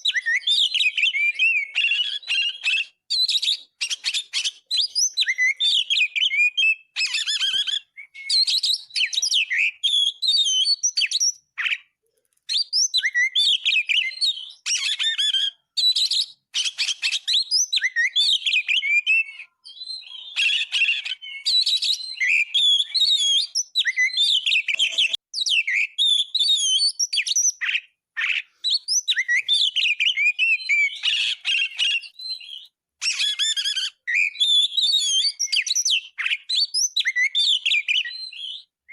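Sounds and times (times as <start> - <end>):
songbird whistles and trills: 0.0 - 38.9.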